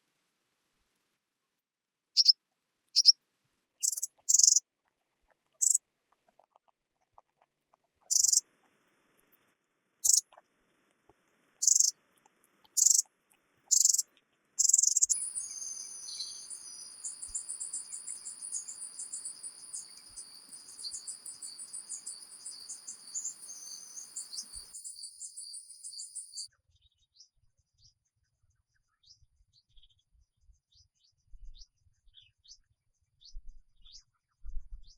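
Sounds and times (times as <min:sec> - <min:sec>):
insect chirping and trilling: 0:03.8 - 0:04.6, 0:05.6 - 0:05.8, 0:08.1 - 0:08.4, 0:11.6 - 0:11.9, 0:12.8 - 0:13.0, 0:13.7 - 0:14.0, 0:14.6 - 0:26.5.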